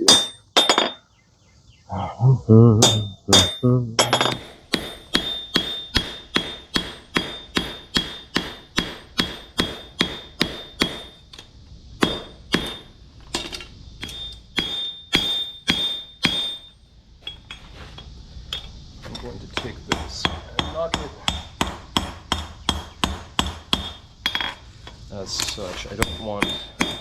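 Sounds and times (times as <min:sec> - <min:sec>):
hammer striking metal on anvil: 0:00.0 - 0:01.0, 0:02.8 - 0:11.2, 0:12.0 - 0:16.7, 0:19.5 - 0:24.6, 0:25.4 - 0:27.0.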